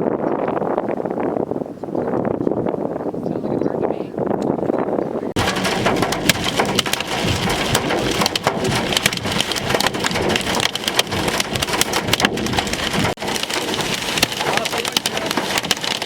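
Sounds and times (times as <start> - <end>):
heavy rain pelting down: 5.4 - 16.0.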